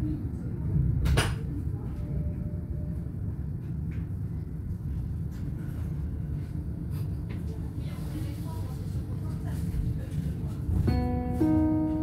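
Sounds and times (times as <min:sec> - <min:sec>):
train interior rumble: 0:00.0 - 0:12.0.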